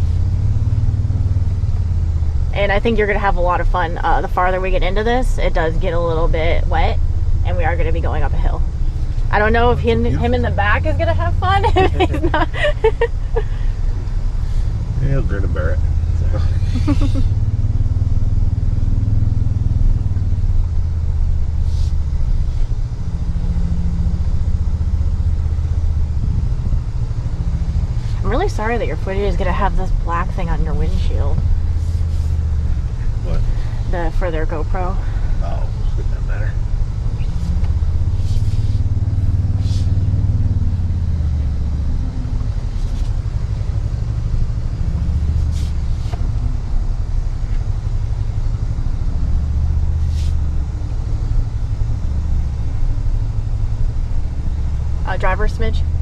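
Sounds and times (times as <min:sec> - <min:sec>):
engine low rumble: 0:00.0 - 0:56.0
brief hiss: 0:39.6 - 0:40.0.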